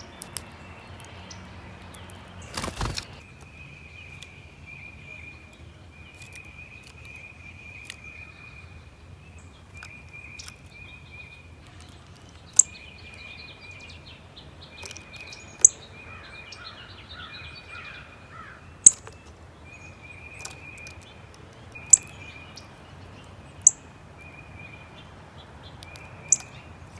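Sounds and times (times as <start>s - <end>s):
birds twittering: 0.0s - 26.9s
bird chip notes: 18.8s - 24.9s.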